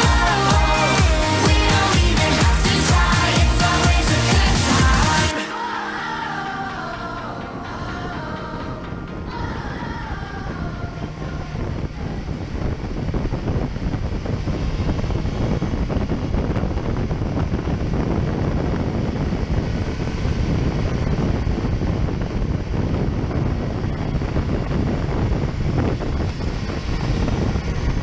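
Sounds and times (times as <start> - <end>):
wind buffeting microphone: 6.4 - 28.0.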